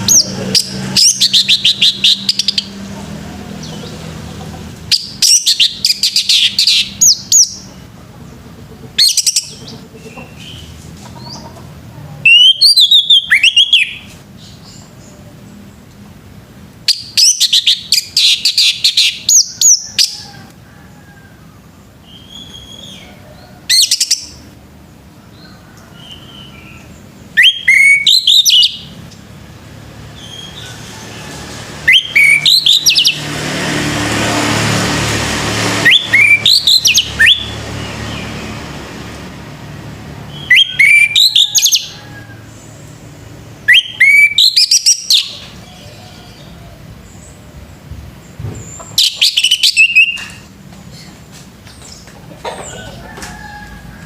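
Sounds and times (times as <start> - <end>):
thrush singing whistled notes: 0.0 - 2.8, 4.9 - 7.7, 12.3 - 14.1, 16.8 - 20.2, 22.1 - 23.1, 26.1 - 29.0, 31.8 - 33.3, 35.8 - 38.4, 40.3 - 42.0, 43.6 - 45.4, 48.8 - 50.5.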